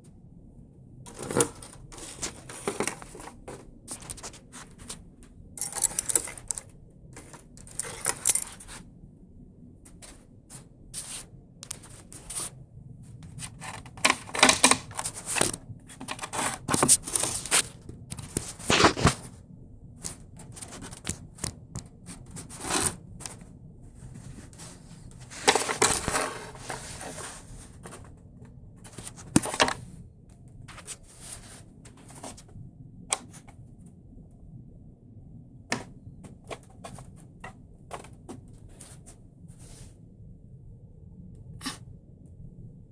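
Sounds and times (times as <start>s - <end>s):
mechanism clicking and knocking: 5.6s - 6.7s.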